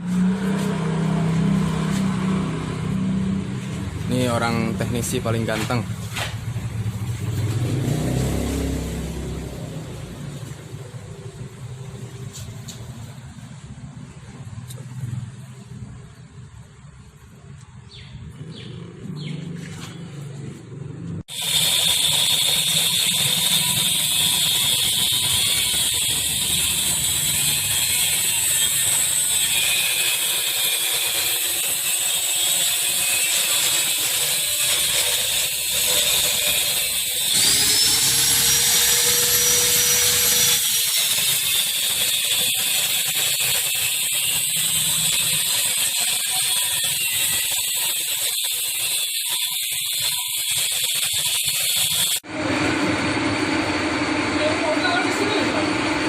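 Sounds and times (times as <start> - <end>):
machine whine: 21.3 - 30.2, 34.5 - 56.0.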